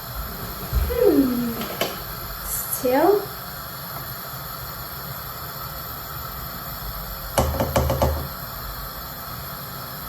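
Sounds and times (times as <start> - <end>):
steady hiss: 0.0 - 10.0
rapid sharp knocks: 7.4 - 8.3.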